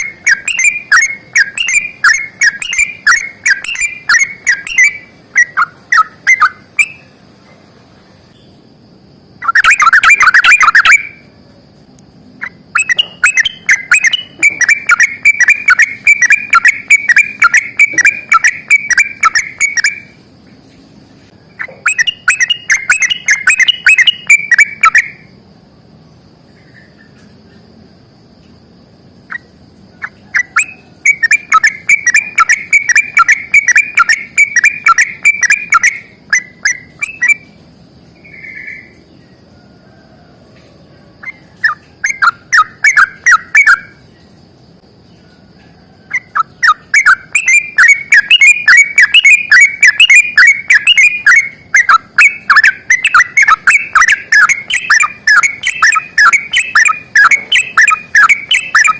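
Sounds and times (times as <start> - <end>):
bird chattering song: 0.0 - 7.2, 9.3 - 11.3, 12.4 - 20.2, 21.4 - 25.3, 29.3 - 39.3, 41.2 - 44.4, 46.0 - 58.9.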